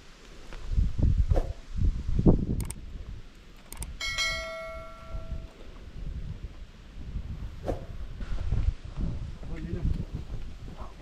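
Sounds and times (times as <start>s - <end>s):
light clicks: 2.6s - 4.0s
bell-like chime: 4.0s - 5.5s.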